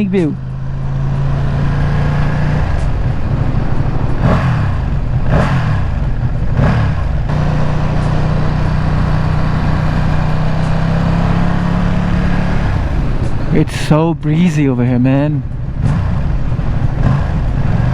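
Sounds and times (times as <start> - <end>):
motorcycle engine running: 0.0 - 17.9
whooshing sweeps: 0.4 - 14.7.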